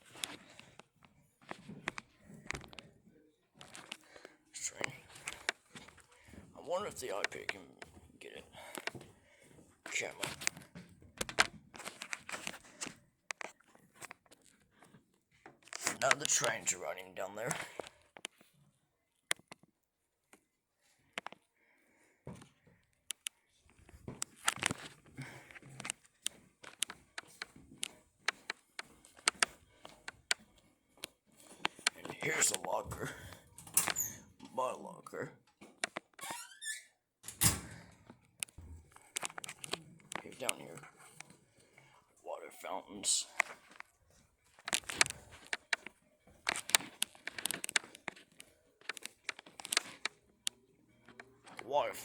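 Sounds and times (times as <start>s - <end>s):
sharp clicks: 23.1s - 23.4s, 25.8s - 30.4s, 38.4s - 40.8s, 44.5s - 48.2s, 48.8s - 50.2s.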